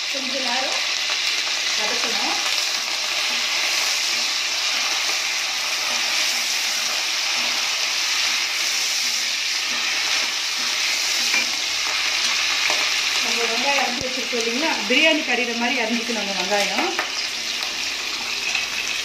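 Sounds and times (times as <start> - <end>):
chillies sizzling in hot oil: 0.0 - 19.0
metal spatula stirring: 2.8 - 13.2.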